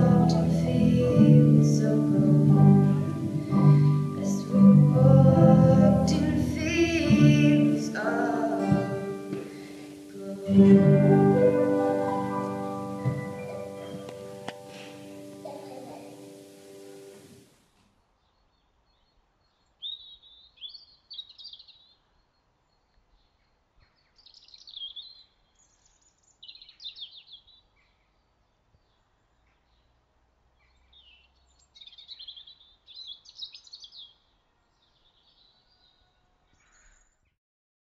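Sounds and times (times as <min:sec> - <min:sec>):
low hiss: 0:00.0 - 0:18.1
faint bird song: 0:15.0 - 0:17.2, 0:17.9 - 0:37.4.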